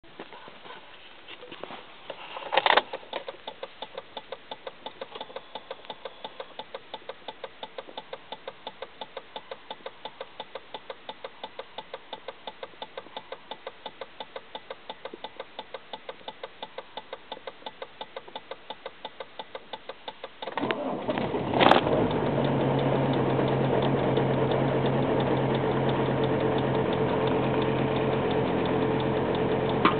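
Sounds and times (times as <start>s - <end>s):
engine cranking with starter whine: 20.4s - 29.9s.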